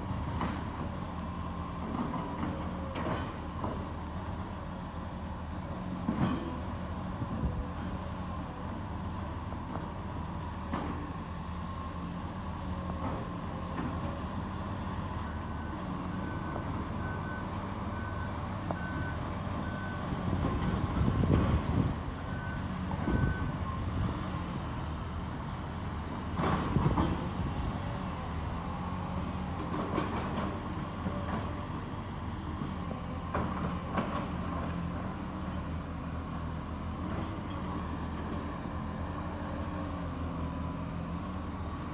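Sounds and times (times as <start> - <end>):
reversing alarm beeping: 16.2 - 20.7.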